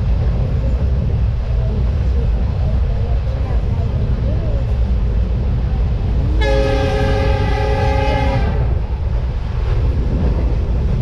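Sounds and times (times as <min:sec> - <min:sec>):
low rumble: 0:00.0 - 0:11.0
train horn blast: 0:06.4 - 0:08.8.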